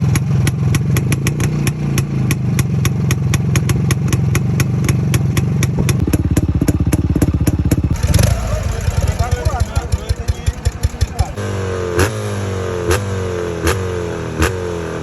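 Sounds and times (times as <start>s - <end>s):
motorcycle exhaust chopping beat: 0.0s - 14.8s
sharp engine ticking: 7.6s - 11.6s.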